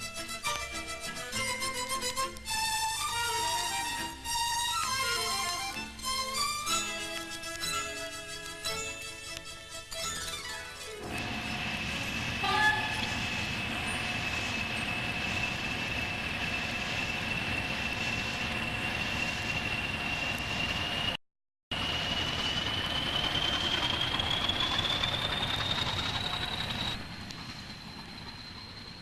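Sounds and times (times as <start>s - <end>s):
train rumbling: 0.0s - 9.6s, 10.8s - 29.0s
high whine rising in pitch: 11.0s - 29.0s.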